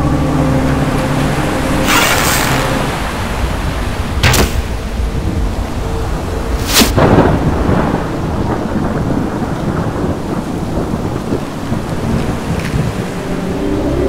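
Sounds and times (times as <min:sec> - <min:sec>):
steady rain: 0:00.0 - 0:14.0
thunder rumbling: 0:00.0 - 0:14.0
sharp thunder crack: 0:03.7 - 0:13.2.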